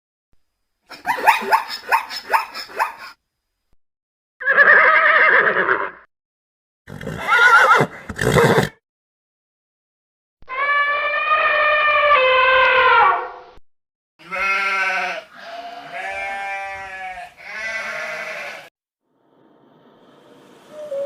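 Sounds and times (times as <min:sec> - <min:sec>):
sheep bleating: 0:14.2 - 0:18.7.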